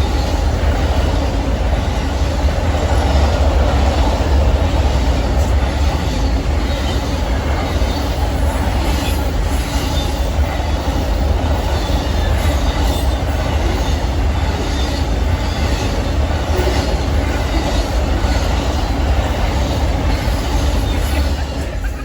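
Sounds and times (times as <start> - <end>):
train cars rumbling past: 0.0 - 22.0.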